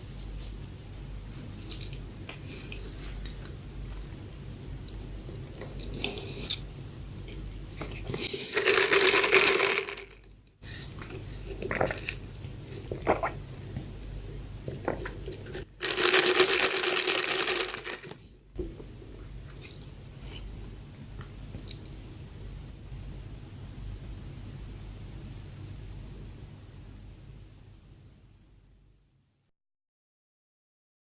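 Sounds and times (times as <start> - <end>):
quiet chewing: 1.5 - 4.2, 4.8 - 8.4
loud crinkling and tearing: 15.8 - 18.1.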